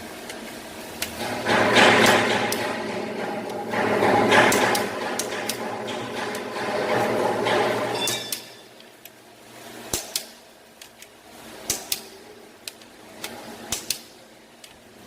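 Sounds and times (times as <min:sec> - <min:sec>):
dense mechanical rattle: 0:01.0 - 0:08.2.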